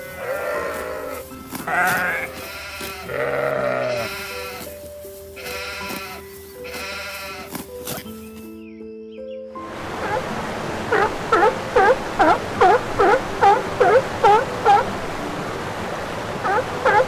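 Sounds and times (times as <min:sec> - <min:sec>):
goat bleating: 0:00.2 - 0:04.7, 0:05.6 - 0:07.5.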